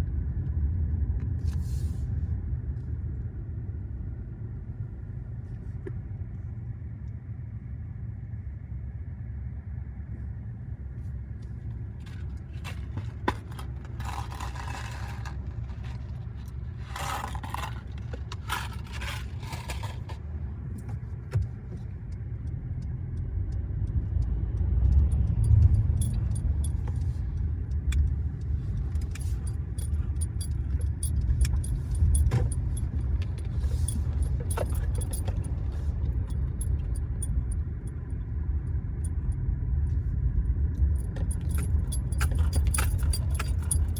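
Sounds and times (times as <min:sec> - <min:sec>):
road and engine rumble: 0:00.0 - 0:43.9
metallic clicking and jingling: 0:12.0 - 0:20.2, 0:25.2 - 0:38.1, 0:40.8 - 0:43.9.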